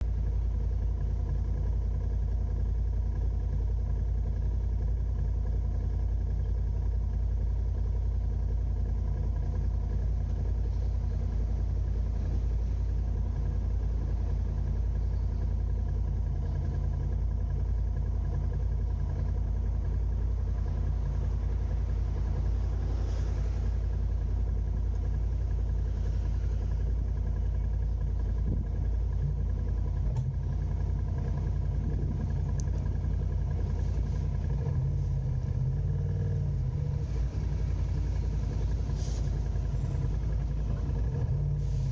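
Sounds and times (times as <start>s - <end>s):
car engine and road noise: 0.0s - 41.9s
faint hum: 0.0s - 41.9s
hiss: 22.2s - 24.2s, 37.0s - 41.9s.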